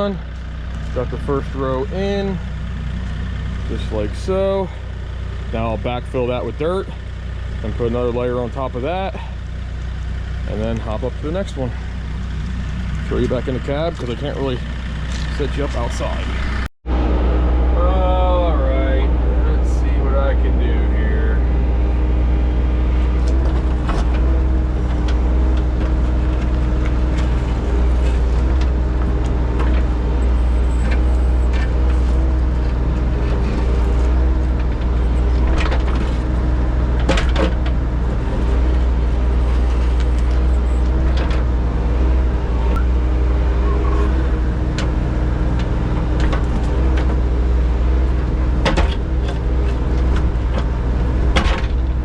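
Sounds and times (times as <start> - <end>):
engine rumbling: 0.0 - 52.0
machine knocks and clunks: 37.0 - 37.8, 48.6 - 52.0.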